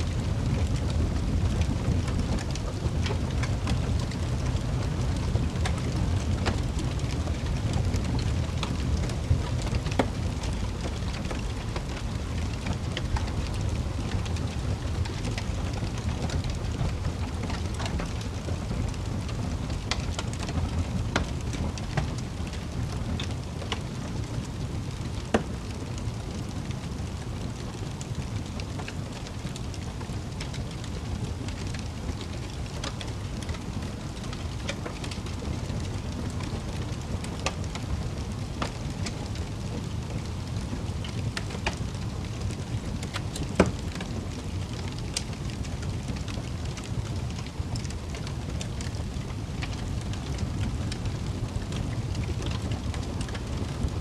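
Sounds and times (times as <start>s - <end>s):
loud fire pops: 0.0s - 54.0s
wood fire burning: 0.0s - 54.0s.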